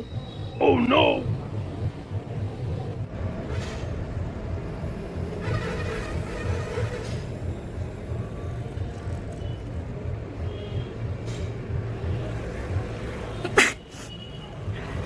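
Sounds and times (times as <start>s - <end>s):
woman sneezing: 13.4s - 14.1s.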